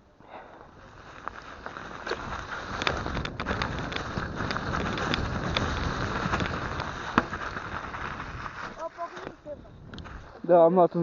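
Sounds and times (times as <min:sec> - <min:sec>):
bike tyre noise on snow: 0:00.0 - 0:11.0
rushing wind: 0:00.6 - 0:10.5
bike rattling clicks and knocks: 0:01.1 - 0:09.4.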